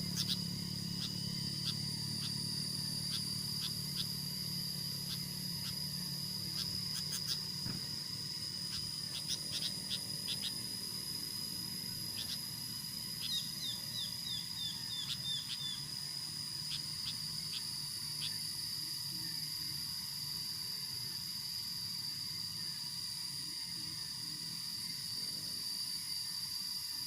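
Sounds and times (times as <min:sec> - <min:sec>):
high insect drone: 0:00.0 - 0:27.0.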